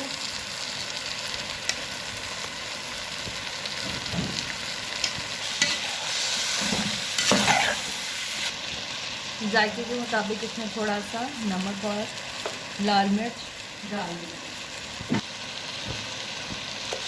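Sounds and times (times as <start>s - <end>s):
food sizzling in hot oil: 0.0s - 17.0s
spoon scraping a pan: 5.0s - 8.1s.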